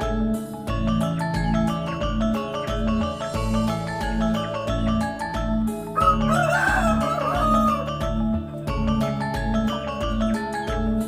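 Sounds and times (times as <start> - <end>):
mallet percussion music: 0.0 - 11.0
rooster crowing: 6.0 - 7.9.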